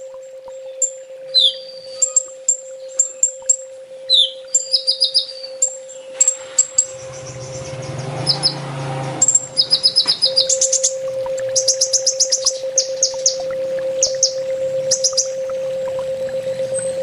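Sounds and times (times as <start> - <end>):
bird chirping and trilling: 0.3 - 17.0
steady low hum: 5.9 - 17.0
rushing noise: 6.4 - 10.9.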